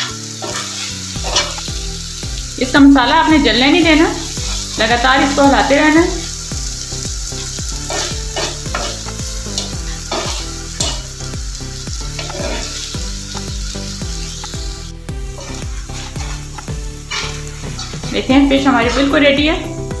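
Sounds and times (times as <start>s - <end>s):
metal spatula scraping a pan: 0.0s - 1.8s, 4.0s - 11.2s, 12.1s - 14.7s, 15.3s - 19.2s
fish sizzling: 0.0s - 20.0s.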